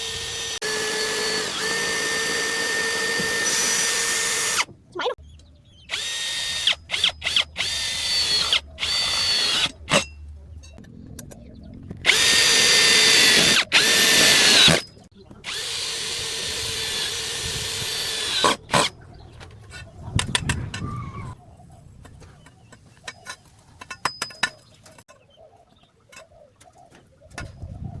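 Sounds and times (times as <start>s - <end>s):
electric drill whining: 0.0s - 4.7s, 5.9s - 9.8s, 12.1s - 14.8s, 15.4s - 18.8s.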